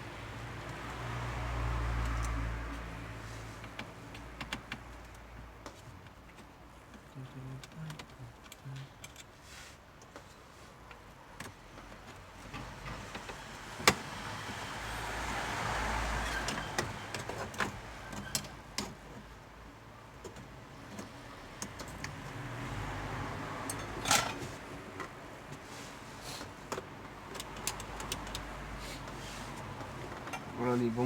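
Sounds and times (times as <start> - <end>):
clicks and taps on plastic trim: 3.6 - 9.2.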